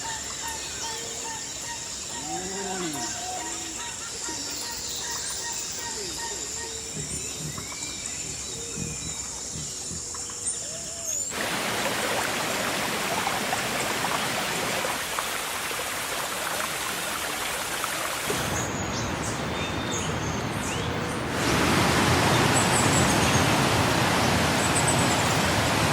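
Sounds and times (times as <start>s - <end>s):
birds chirping: 0.0s - 11.5s, 18.2s - 25.9s
rain hissing: 11.2s - 25.9s.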